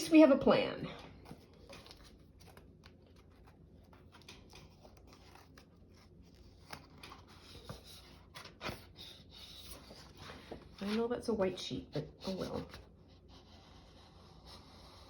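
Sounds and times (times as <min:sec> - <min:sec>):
paper rustling: 0:01.1 - 0:11.4.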